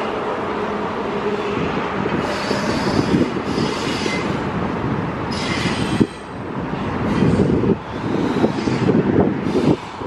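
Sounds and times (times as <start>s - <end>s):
train wheels rumbling on rails: 0.0s - 10.0s
high-pitched wheel squeal: 2.2s - 4.4s, 5.3s - 6.3s.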